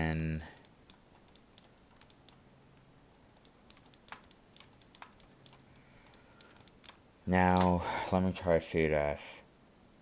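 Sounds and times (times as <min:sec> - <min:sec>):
low hiss: 0:00.0 - 0:10.0
keyboard keys clicking: 0:03.4 - 0:07.0.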